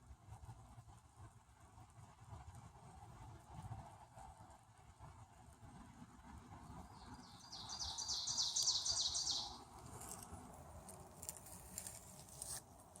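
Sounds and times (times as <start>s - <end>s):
songbird singing high notes: 7.5s - 9.6s.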